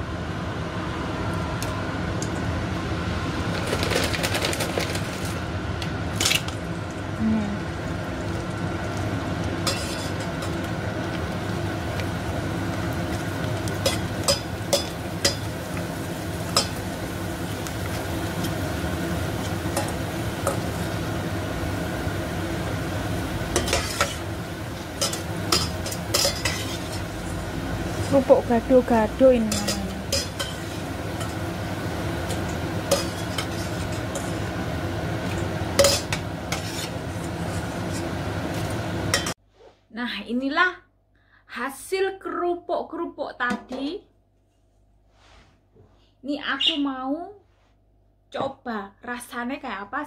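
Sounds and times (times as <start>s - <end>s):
crackers sizzling in hot oil: 3.2s - 39.4s.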